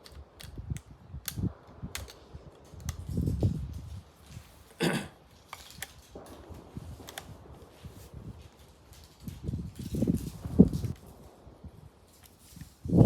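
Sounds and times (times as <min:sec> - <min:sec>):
rifle action clacking: 0:00.0 - 0:03.3, 0:05.4 - 0:07.4
rifle metallic clicks: 0:00.0 - 0:03.5, 0:05.4 - 0:07.3.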